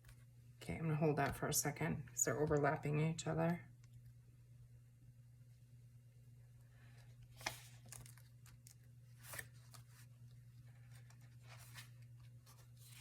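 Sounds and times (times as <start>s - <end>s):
low steady hum: 0.0s - 13.0s
paper rustling: 7.3s - 13.0s.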